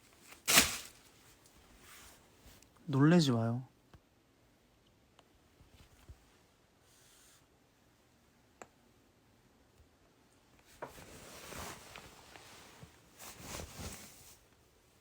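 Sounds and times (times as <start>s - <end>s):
package rustling: 0.2s - 1.4s.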